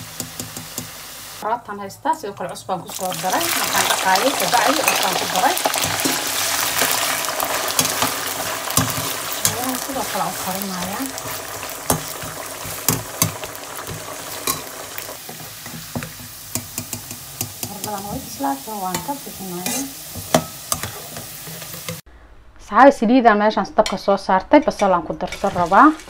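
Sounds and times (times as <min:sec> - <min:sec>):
food sizzling in hot oil: 0:00.0 - 0:01.4, 0:02.8 - 0:22.0, 0:25.2 - 0:26.0
metal spatula scraping a pan: 0:04.6 - 0:18.3, 0:18.9 - 0:22.0, 0:25.2 - 0:26.0.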